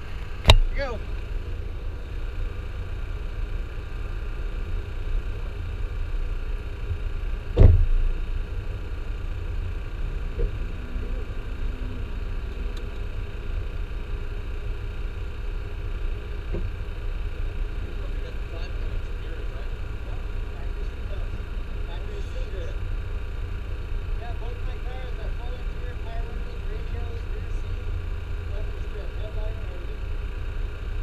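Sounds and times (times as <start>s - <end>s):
car engine idling: 0.0s - 31.0s
sharp knock: 7.6s - 8.0s.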